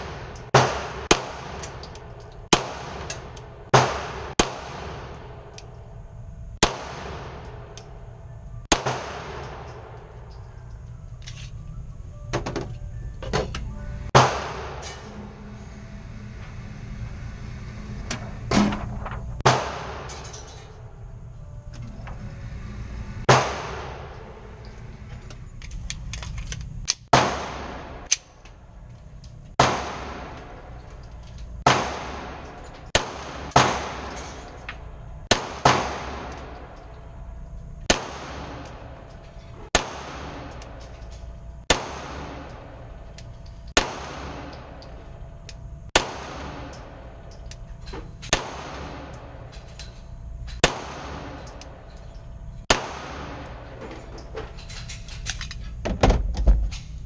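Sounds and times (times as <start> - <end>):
pistol shots with ringing echo: 0.0 - 6.0, 6.6 - 10.7, 14.2 - 15.2, 19.4 - 20.9, 23.3 - 24.7, 27.1 - 28.5, 29.6 - 37.2, 37.8 - 45.2, 46.0 - 47.5, 48.3 - 49.5, 50.6 - 52.0, 52.7 - 53.8.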